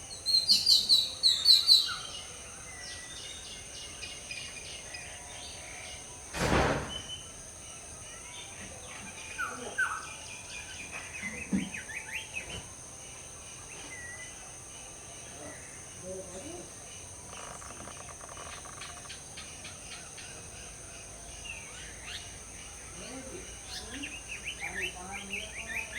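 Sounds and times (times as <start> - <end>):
high insect drone: 0.0 - 25.9
tropical birds chirping: 0.0 - 25.9.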